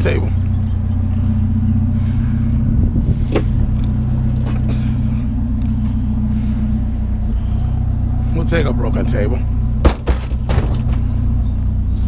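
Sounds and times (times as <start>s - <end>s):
vehicle engine idling: 0.0s - 12.0s
sharp knocks: 9.8s - 11.0s.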